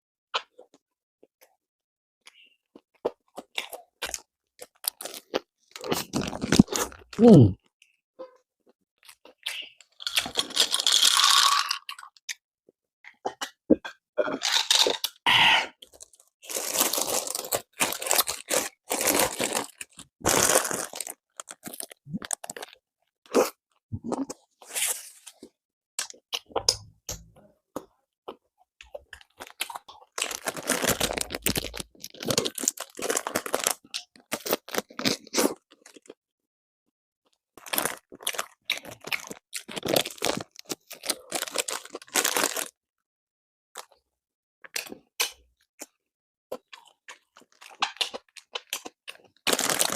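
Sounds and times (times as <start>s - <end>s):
crusty bread crunching: 3.0s - 7.2s, 15.8s - 26.5s, 29.2s - 36.2s, 37.6s - 42.8s, 46.6s - 49.9s.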